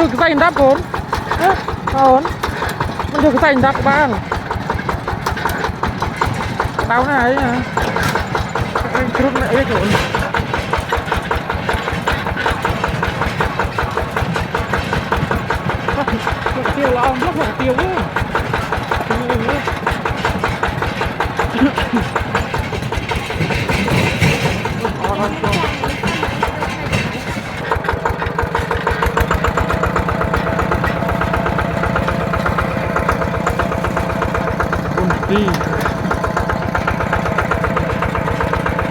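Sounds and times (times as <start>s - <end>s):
diesel engine chugging: 0.0s - 38.9s.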